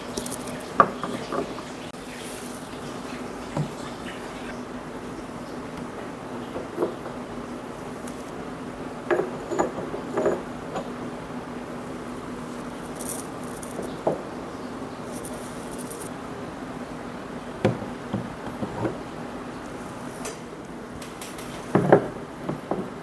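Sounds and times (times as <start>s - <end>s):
small hard objects knocking: 0.0s - 1.6s, 12.6s - 14.3s, 15.0s - 16.1s.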